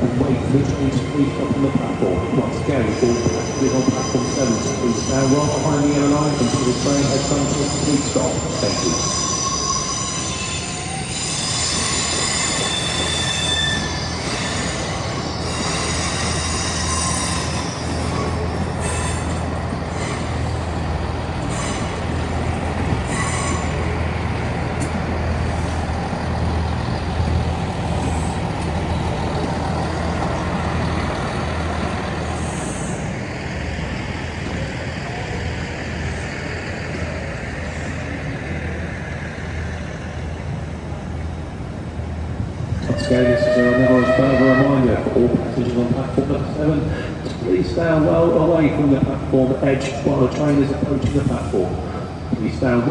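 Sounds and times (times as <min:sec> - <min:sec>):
train low rumble: 0:00.0 - 0:52.9
train wheels squealing: 0:02.5 - 0:40.6, 0:42.8 - 0:45.0.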